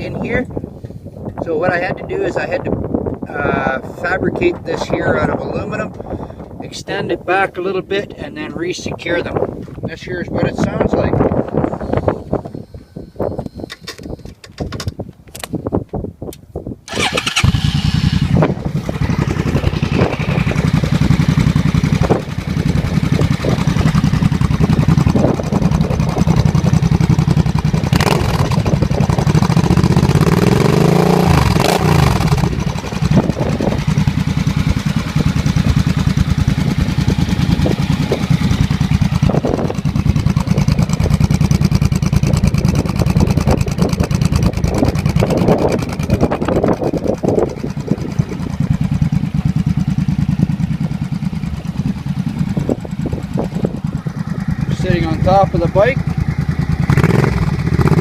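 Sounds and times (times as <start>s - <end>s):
motorcycle engine idling: 16.9s - 58.0s.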